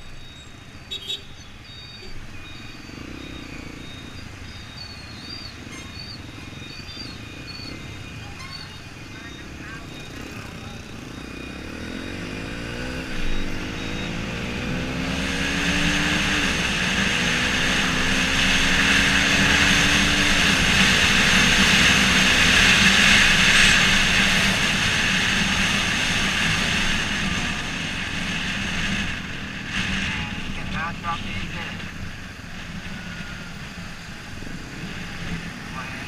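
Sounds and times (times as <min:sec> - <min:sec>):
motorcycle engine accelerating: 0:09.0 - 0:36.0.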